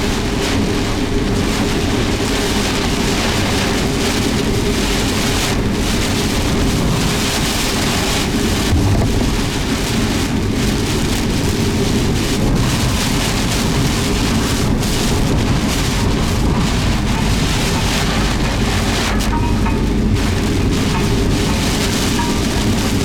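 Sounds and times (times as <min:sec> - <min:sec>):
rain and wind rushing: 0:00.0 - 0:23.0
low rumble: 0:08.6 - 0:10.2, 0:14.6 - 0:23.0.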